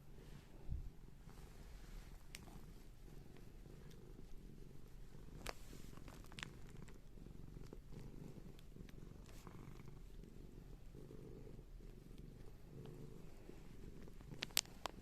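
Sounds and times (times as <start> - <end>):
cat purring: 0.0 - 15.0
faint clicks: 14.0 - 15.0.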